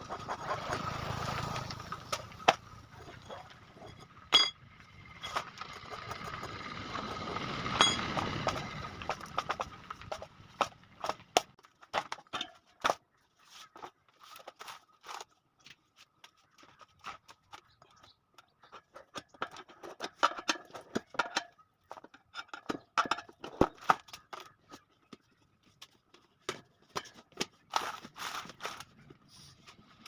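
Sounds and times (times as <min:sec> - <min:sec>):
metal clinks and knocks: 0:02.5 - 0:05.5.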